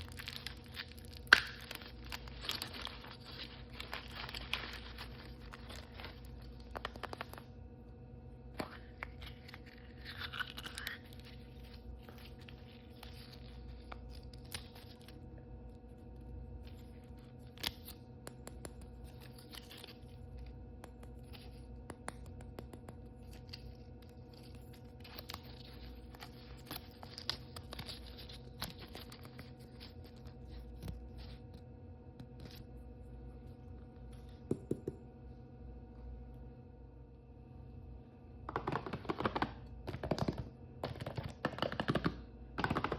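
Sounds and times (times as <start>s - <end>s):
packaging crinkling and rustling: 0.0s - 7.6s.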